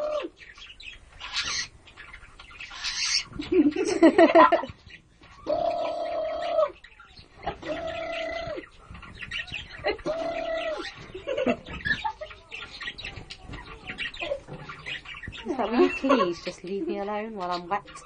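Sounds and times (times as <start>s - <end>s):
bird chirping: 0.0s - 18.0s.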